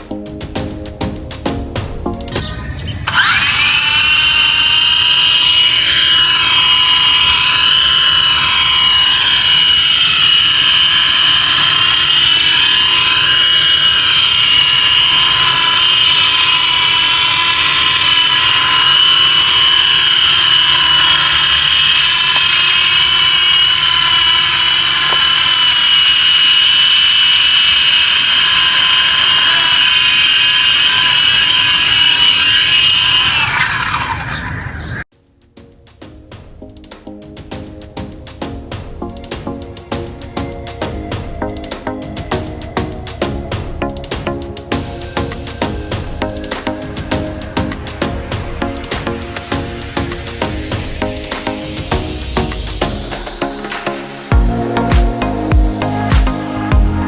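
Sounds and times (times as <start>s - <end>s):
small electric motor whining: 2.4s - 35.1s.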